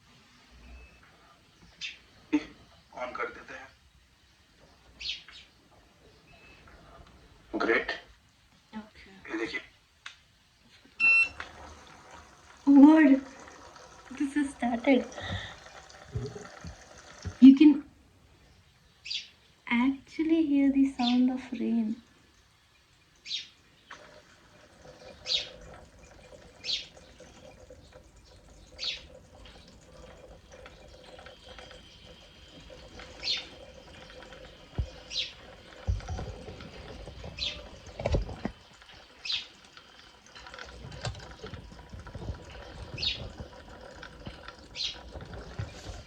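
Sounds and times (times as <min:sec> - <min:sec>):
faint steady hum: 0:10.6 - 0:46.0
water drops plinking: 0:11.0 - 0:17.6, 0:23.1 - 0:46.0.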